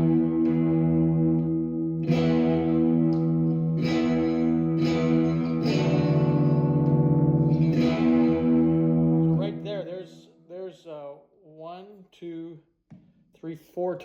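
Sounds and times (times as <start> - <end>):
electric guitar chords strummed: 0.0 - 10.1.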